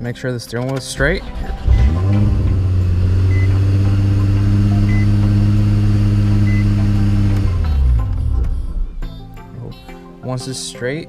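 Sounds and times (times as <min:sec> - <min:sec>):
car engine running: 0:01.0 - 0:09.4.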